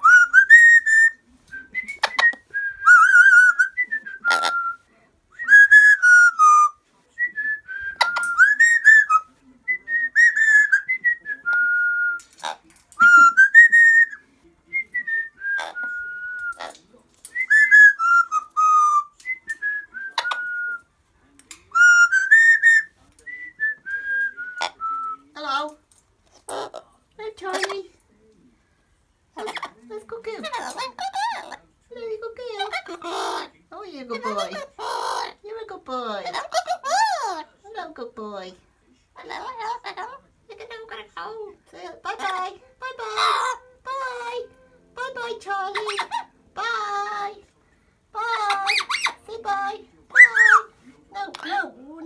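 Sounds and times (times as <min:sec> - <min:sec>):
parrot whistling: 0:00.0 - 0:04.8, 0:05.4 - 0:06.8, 0:07.5 - 0:12.4, 0:13.0 - 0:14.2, 0:14.8 - 0:20.9, 0:21.7 - 0:25.3, 0:45.4 - 0:46.3, 0:48.4 - 0:49.3, 0:50.1 - 0:50.8.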